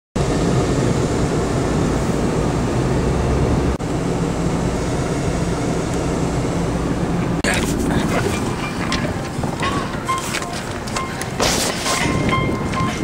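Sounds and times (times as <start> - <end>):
wind blowing across microphone: 7.6 - 13.0.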